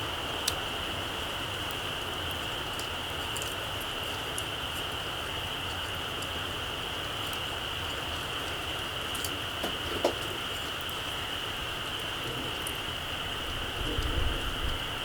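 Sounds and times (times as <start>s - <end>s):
campfire embers crackling: 0.0s - 15.0s
insect chorus: 10.4s - 15.0s.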